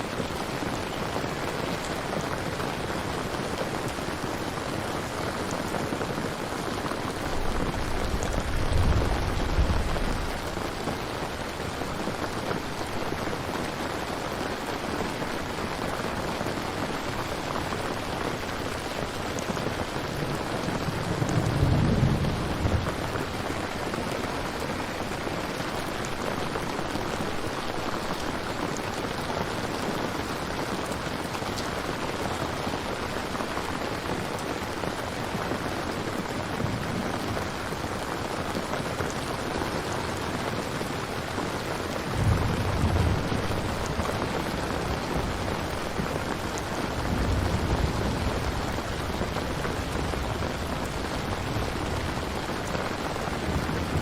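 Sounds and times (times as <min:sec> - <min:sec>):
heavy rain: 0:00.0 - 0:54.0
distant thunder rumbling: 0:07.1 - 0:11.1, 0:20.0 - 0:25.1, 0:42.0 - 0:54.0.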